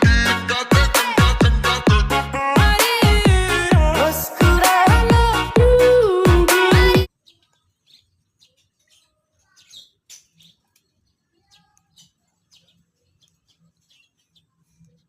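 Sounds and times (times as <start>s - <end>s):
bird chirping: 7.1s - 15.0s.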